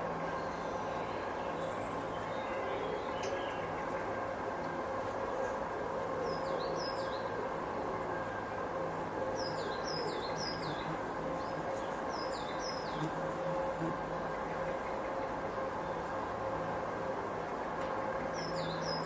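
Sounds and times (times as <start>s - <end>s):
breeze through trees: 0.0s - 19.0s.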